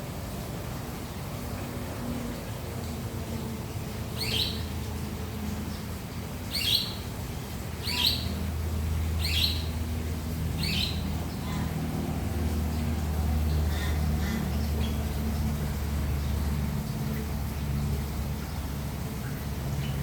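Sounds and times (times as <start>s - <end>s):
bird chirping: 7.8s - 8.4s, 10.6s - 11.6s.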